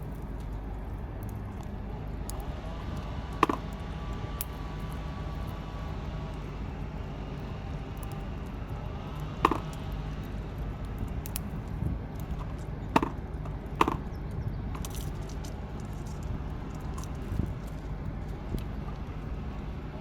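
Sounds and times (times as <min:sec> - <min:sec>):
steady low rumble: 0:00.0 - 0:20.0
sharp woody cracks: 0:03.4 - 0:03.7, 0:09.5 - 0:09.9, 0:12.2 - 0:14.2.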